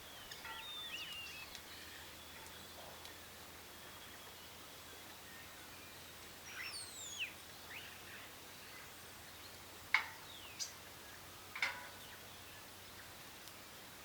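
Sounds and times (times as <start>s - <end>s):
birds calling: 0.0s - 3.2s
faint steady hiss: 0.0s - 14.0s.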